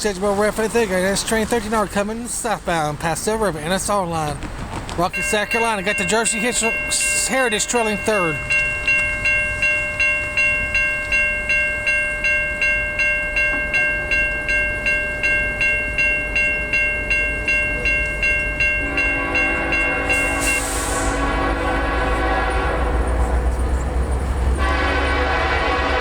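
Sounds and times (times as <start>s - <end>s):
crossing bell ringing: 5.0s - 26.0s
locomotive air horn: 18.8s - 26.0s.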